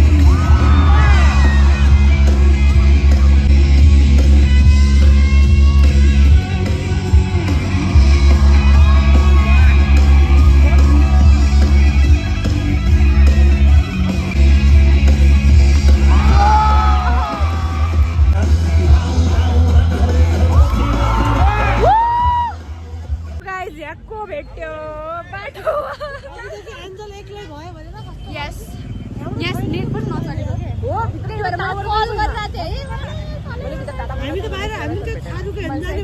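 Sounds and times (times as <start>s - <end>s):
heavy bass music: 0.0s - 23.4s.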